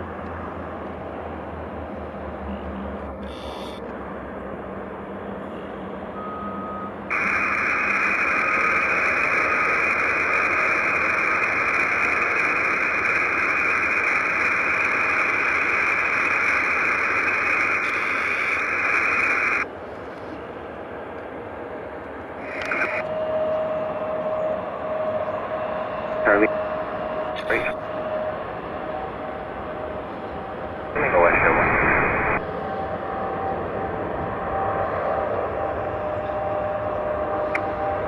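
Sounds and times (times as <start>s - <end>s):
radio static hiss: 3.2s - 3.8s, 7.1s - 19.6s, 22.4s - 23.0s, 26.2s - 26.5s, 27.4s - 27.8s, 31.0s - 32.4s
brief beep: 6.2s - 7.0s.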